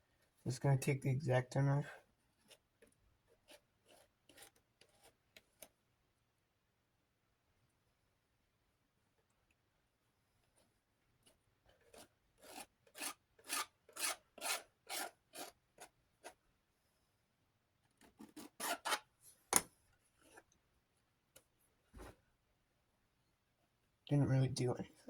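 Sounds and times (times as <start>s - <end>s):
knife scraping plastic: 3.4s - 5.7s, 11.3s - 16.4s, 18.0s - 19.1s.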